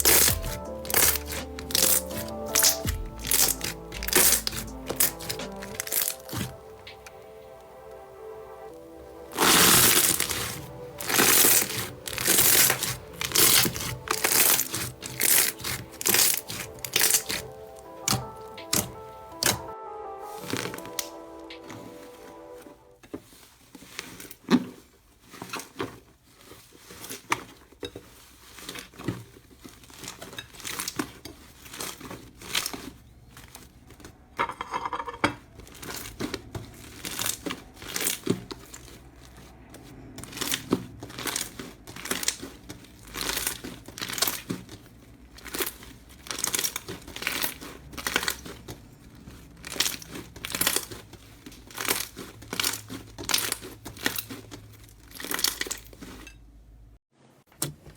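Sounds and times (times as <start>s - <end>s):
slime crackling and popping: 0.0s - 7.8s, 8.7s - 22.1s, 23.2s - 34.2s, 35.5s - 56.4s.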